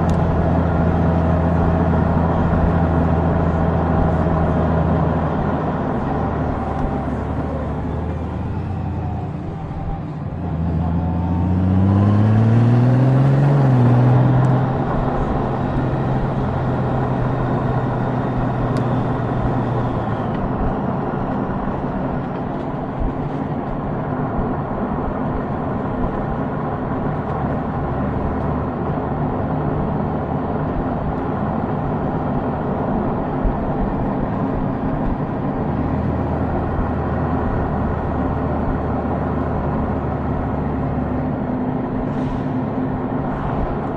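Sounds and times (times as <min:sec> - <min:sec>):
motorcycle engine accelerating: 0:00.0 - 0:22.3
wind and road noise: 0:00.0 - 0:43.9.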